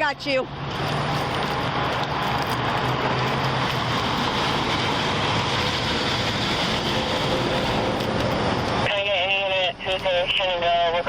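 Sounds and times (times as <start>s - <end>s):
vehicle rushing noise: 0.5s - 8.9s.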